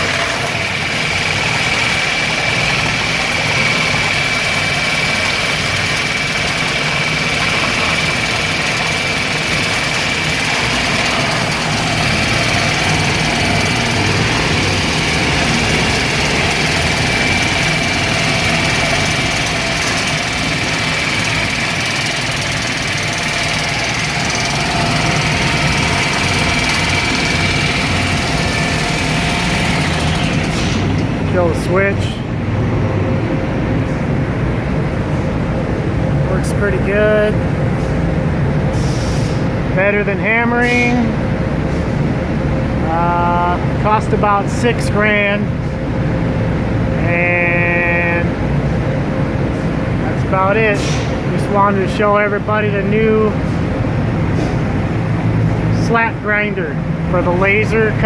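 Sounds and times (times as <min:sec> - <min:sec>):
slat grinder grinding: 0:00.0 - 0:31.2
high whine: 0:00.0 - 0:58.0.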